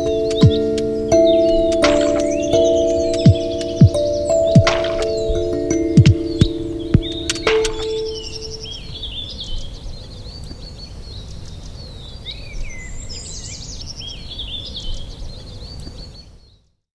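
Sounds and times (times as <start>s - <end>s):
held chime-like music note: 0.0s - 9.0s
birds chirping and trilling: 0.0s - 16.7s.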